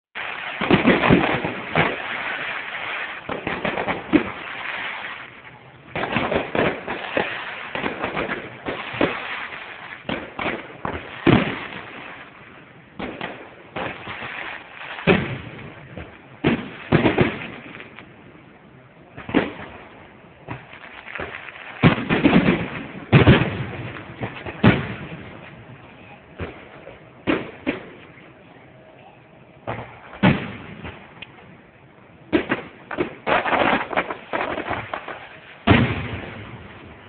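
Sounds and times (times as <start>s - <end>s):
firework booms: 0.2s - 28.5s, 29.6s - 37.0s
firework crackling: 0.2s - 37.0s.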